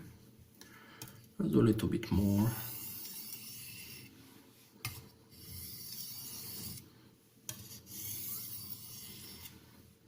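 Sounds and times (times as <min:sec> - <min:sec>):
knife scraping on sharpening stone: 0:02.6 - 0:04.1, 0:04.8 - 0:06.8, 0:07.5 - 0:09.6.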